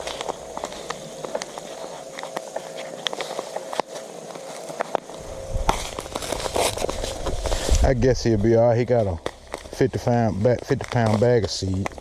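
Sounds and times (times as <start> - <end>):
faint mechanical hum: 0.0 - 12.0
sharp clicks and ticks: 4.8 - 12.0
low rumble: 5.1 - 10.7.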